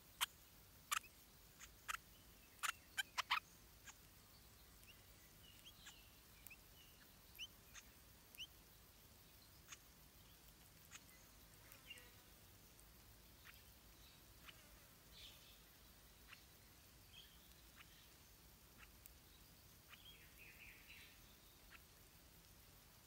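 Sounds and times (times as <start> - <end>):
low steady hiss: 0.0 - 23.0
thin rising bird chirps: 0.0 - 23.0.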